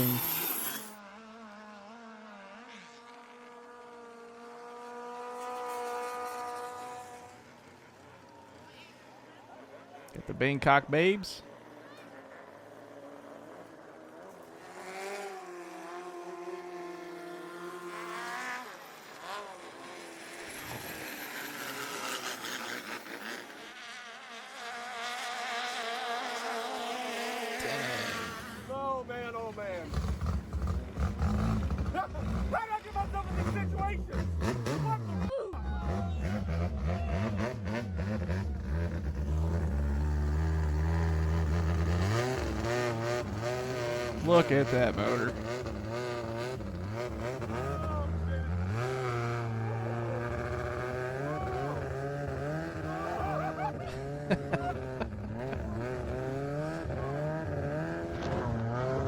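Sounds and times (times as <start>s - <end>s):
high rising whine: 0.0s - 1.0s
boat engines revving hard: 9.6s - 59.0s.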